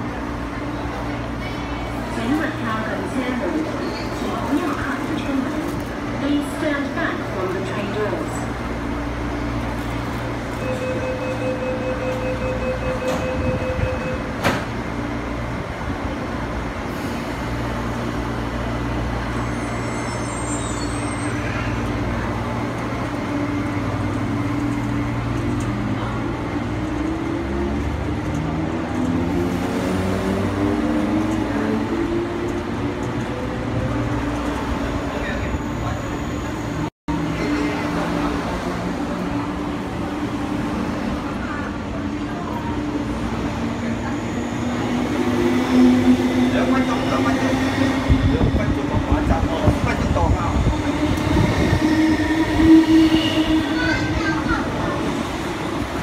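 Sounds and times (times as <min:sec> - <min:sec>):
door warning beeps: 0:10.6 - 0:14.5
train doors thumping shut: 0:12.9 - 0:14.9.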